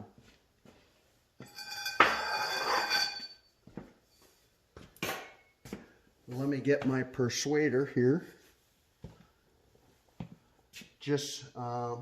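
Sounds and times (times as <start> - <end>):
metallic ringing: 1.4 - 3.5.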